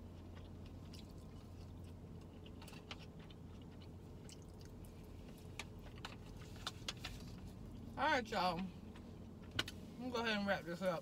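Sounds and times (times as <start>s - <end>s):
faint chewing: 0.0s - 7.9s
low steady hum: 0.0s - 11.0s.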